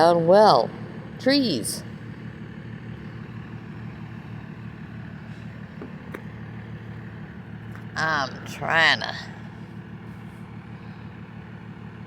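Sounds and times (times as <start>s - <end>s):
distant truck engines rumbling: 0.0s - 12.0s.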